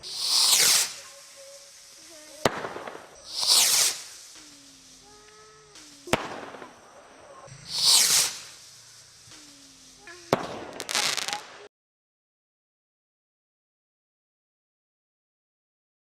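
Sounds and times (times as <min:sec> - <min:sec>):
crackling pops: 0:00.0 - 0:11.7
firework bangs: 0:00.0 - 0:11.7
firework hissing burst: 0:00.0 - 0:11.7.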